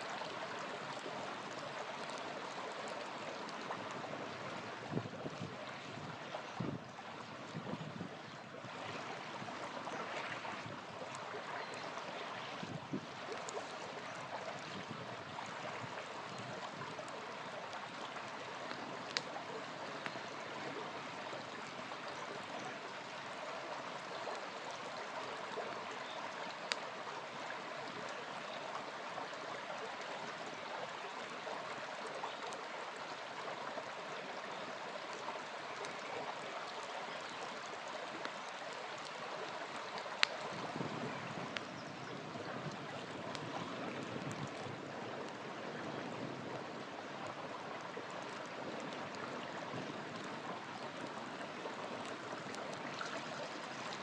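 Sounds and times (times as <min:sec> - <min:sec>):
small river flowing: 0:00.0 - 0:54.0
campfire popping: 0:16.0 - 0:20.3, 0:26.5 - 0:26.9, 0:39.0 - 0:41.7.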